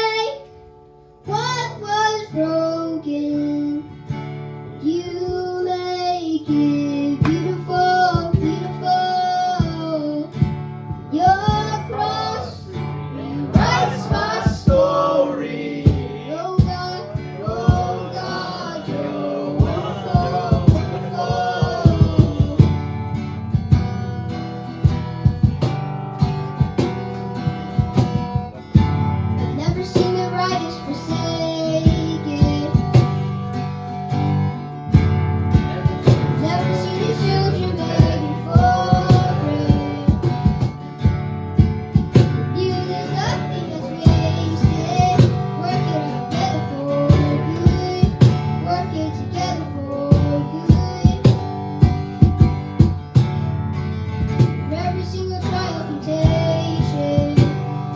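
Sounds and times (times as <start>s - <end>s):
strummed acoustic guitar: 0.0s - 57.9s
sustained bass: 11.7s - 30.2s
drum hits: 13.6s - 15.1s, 19.6s - 24.1s, 24.8s - 30.2s, 35.0s - 42.7s, 50.2s - 53.6s, 54.2s - 54.8s.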